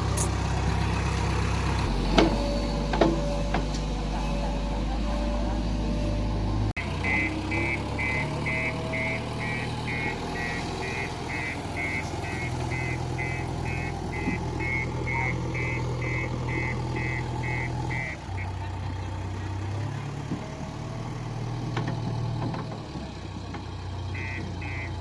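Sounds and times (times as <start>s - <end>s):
diesel engine running: 0.0s - 25.0s
reversing alarm beeping: 1.8s - 18.5s, 24.2s - 25.0s.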